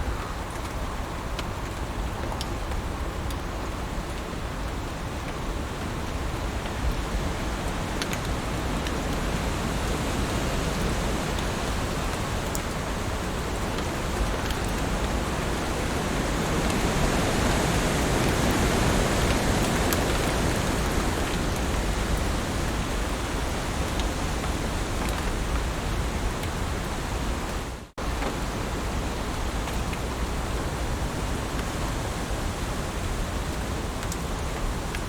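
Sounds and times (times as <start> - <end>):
heavy rain on leaves: 0.0 - 35.0
rain drop ticks: 0.1 - 23.1, 23.8 - 25.8, 27.5 - 30.5, 33.4 - 35.0.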